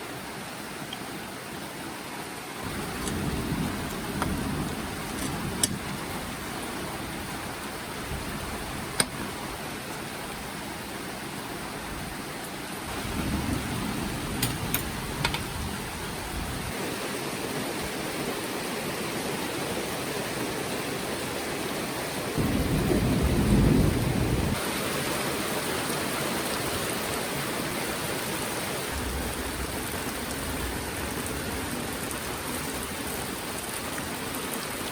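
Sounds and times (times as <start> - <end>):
rain falling steadily: 0.0 - 34.9
thunder rumble: 2.6 - 9.6, 12.9 - 16.8, 22.4 - 24.6, 28.9 - 33.2.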